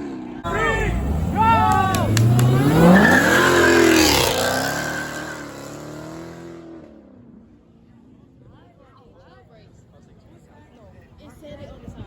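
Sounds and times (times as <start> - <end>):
car engine accelerating: 0.0 - 7.0.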